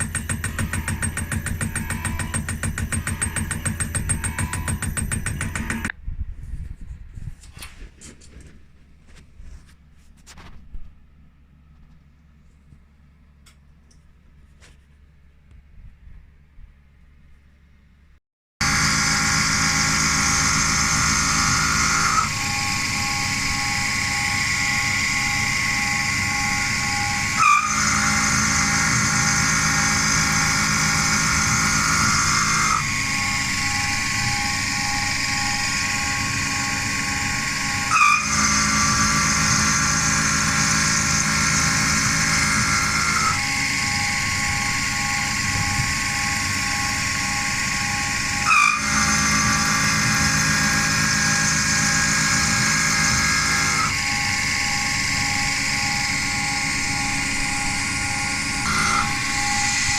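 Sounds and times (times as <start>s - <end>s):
milling machine whine: 0.0s - 5.9s, 18.6s - 59.9s.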